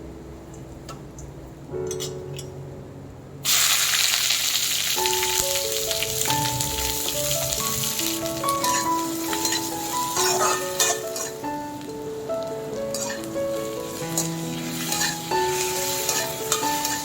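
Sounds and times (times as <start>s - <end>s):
food sizzling in hot oil: 3.4s - 11.9s, 12.9s - 17.0s.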